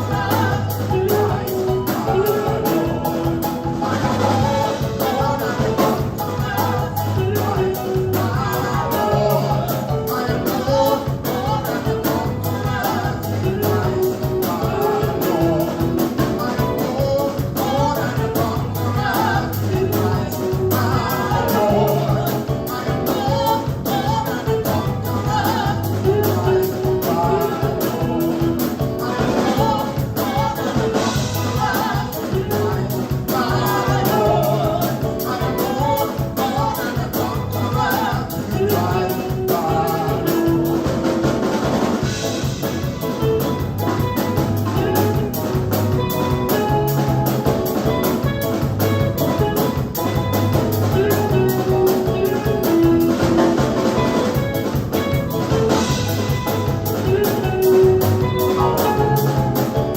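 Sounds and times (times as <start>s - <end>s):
singing: 0.0s - 41.1s
gospel band playing: 0.0s - 59.9s
steady drum beat: 0.0s - 59.9s.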